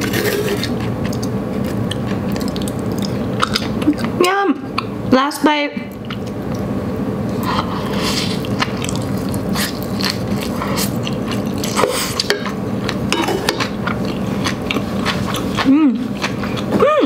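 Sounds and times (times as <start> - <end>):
close chewing of noodles: 0.0 - 4.9, 7.4 - 17.0.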